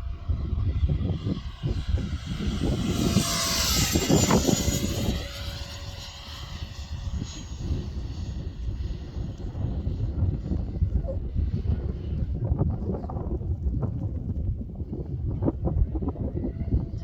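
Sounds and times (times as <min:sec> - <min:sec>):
model jet fan whine passing: 0:00.0 - 0:13.4
wind rumble on microphone: 0:00.0 - 0:17.0.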